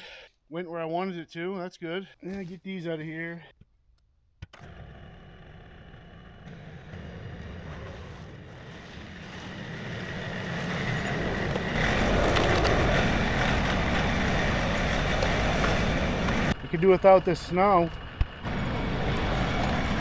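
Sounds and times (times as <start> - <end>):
tractor engine running: 4.4 - 20.0.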